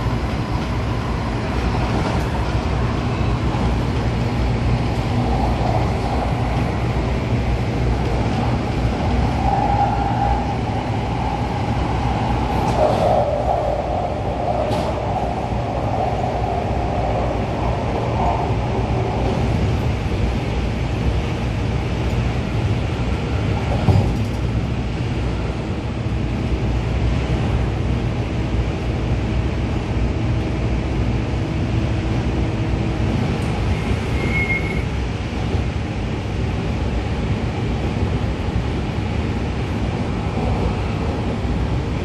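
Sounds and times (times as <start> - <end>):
train wheels rumbling: 0.0 - 42.0
brief high squeal: 33.7 - 35.0.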